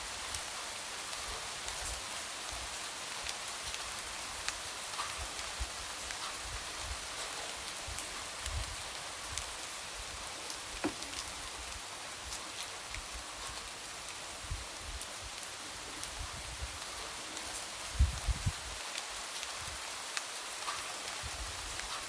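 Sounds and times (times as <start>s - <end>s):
light rain hissing: 0.0s - 22.0s
raindrops tapping on window: 10.7s - 11.4s.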